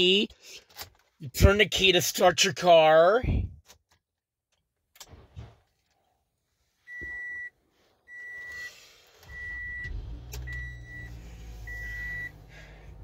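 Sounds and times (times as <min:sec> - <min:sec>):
dashboard warning chime beeps: 0:06.9 - 0:12.4
car engine starting and idling: 0:08.1 - 0:13.0.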